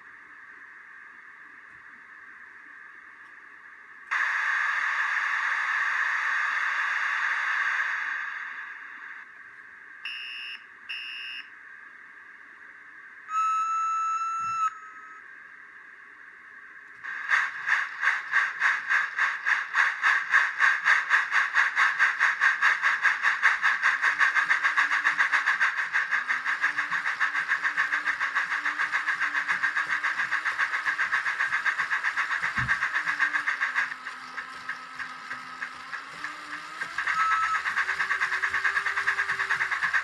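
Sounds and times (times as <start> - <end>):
faint motor hum: 0.0 - 4.7, 8.6 - 40.0
steam engine chuffs: 17.0 - 40.0.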